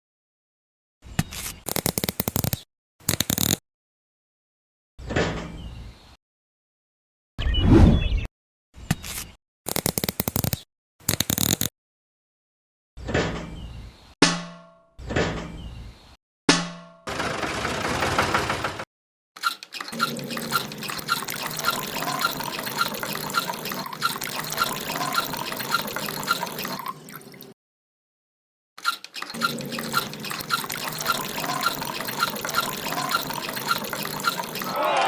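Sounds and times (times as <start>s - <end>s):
water pouring and dripping: 19.4s - 27.6s, 28.8s - 35.0s.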